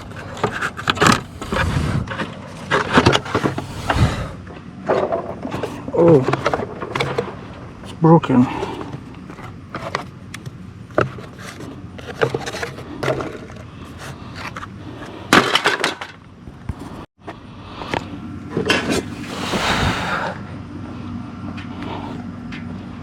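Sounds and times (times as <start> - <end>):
scraping noise: 0.0 - 4.4
steady low hum: 0.0 - 23.0.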